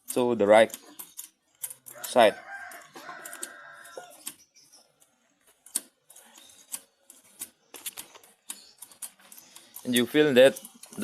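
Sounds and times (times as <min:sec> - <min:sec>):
rooster crowing: 0:01.9 - 0:04.2.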